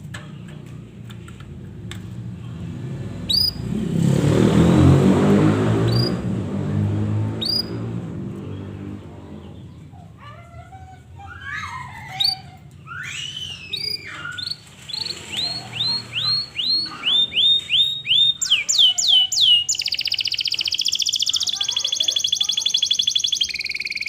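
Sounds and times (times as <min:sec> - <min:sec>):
canary singing: 0:03.1 - 0:04.1, 0:05.4 - 0:06.4, 0:07.1 - 0:09.9, 0:11.4 - 0:24.0.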